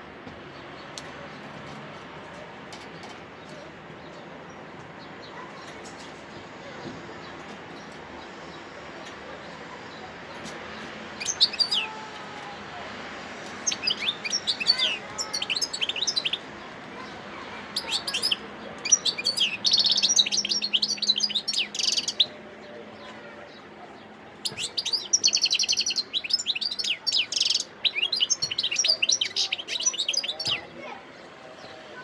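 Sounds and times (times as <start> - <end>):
goldfinch twittering song: 11.2 - 12.0, 13.4 - 22.4, 24.4 - 30.7.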